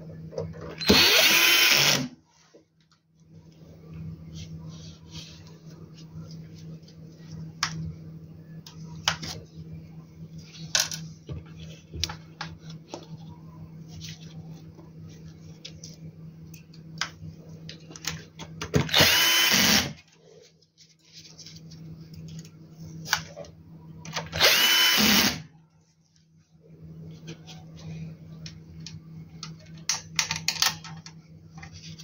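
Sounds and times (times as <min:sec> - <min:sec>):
electric drill-driver driving screws: 0:00.8 - 0:02.1, 0:18.9 - 0:20.0, 0:24.4 - 0:25.4.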